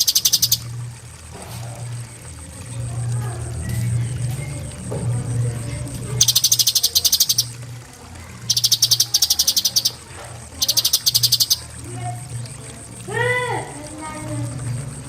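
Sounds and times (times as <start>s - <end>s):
bird singing rattling trills: 0.0s - 0.7s, 6.2s - 7.6s, 8.4s - 11.9s.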